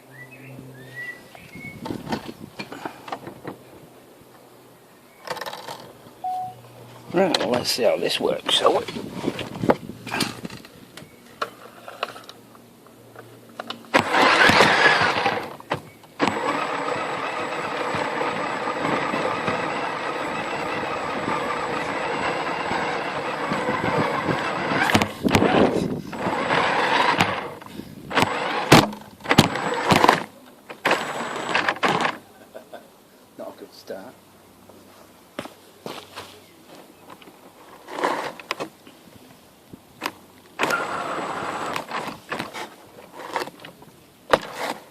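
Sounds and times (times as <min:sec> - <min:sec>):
toy truck electric motor whirring: 0:13.9 - 0:15.6, 0:16.2 - 0:32.2, 0:40.6 - 0:43.5.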